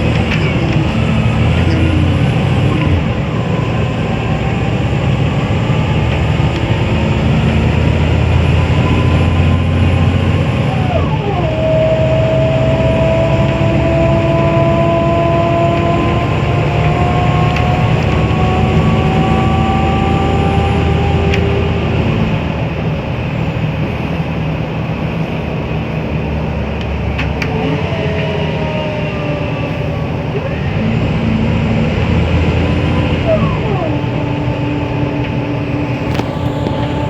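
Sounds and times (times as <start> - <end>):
bus engine running under load: 0.0 - 37.0
drivetrain whine: 0.0 - 37.0.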